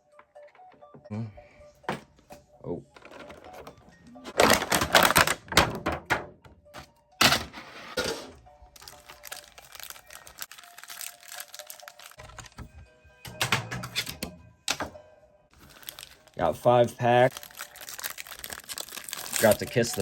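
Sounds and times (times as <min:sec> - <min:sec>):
faint background music: 0:00.0 - 0:20.0
packaging clattering and crinkling: 0:03.0 - 0:05.8, 0:08.8 - 0:12.7, 0:15.6 - 0:20.0.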